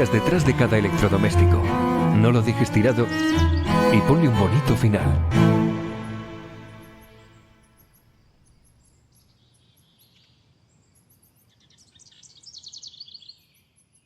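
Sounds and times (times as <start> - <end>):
faint high bird chirps: 6.7 - 14.0.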